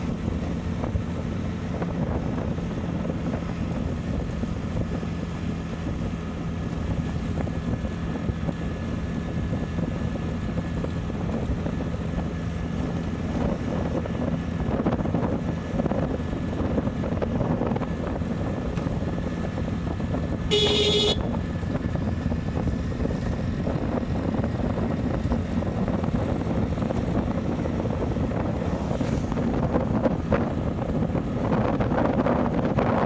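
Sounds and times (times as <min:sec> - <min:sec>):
motorcycle engine and wind rumble: 0:00.0 - 0:33.0
vehicle horn honk: 0:20.5 - 0:21.4.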